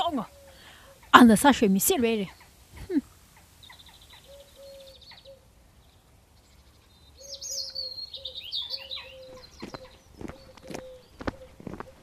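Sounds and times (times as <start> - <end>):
bird warbling: 2.2 - 5.5, 7.2 - 12.0
footsteps: 9.3 - 12.0.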